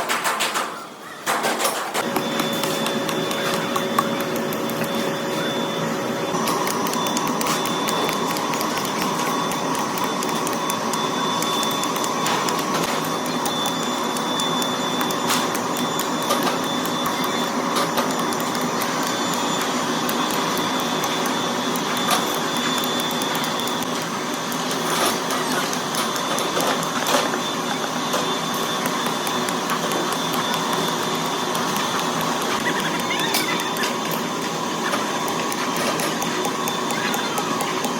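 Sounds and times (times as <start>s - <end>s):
workshop machinery running: 0.0s - 37.9s
thin high whine: 2.0s - 37.9s.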